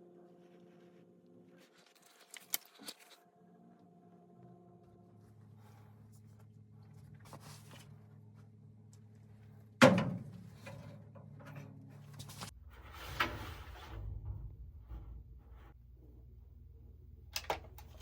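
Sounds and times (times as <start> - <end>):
steady low hum: 3.4 - 18.0
low rumble: 12.5 - 17.2.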